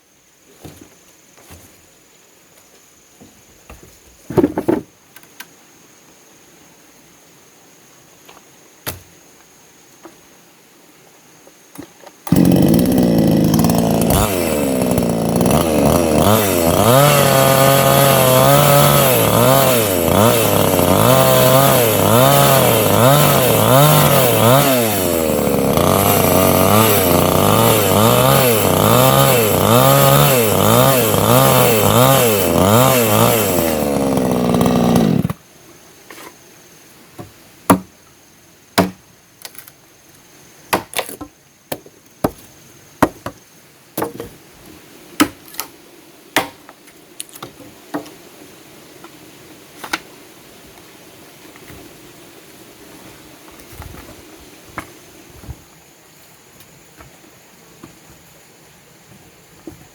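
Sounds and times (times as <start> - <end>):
chainsaw cutting wood: 11.8 - 35.4.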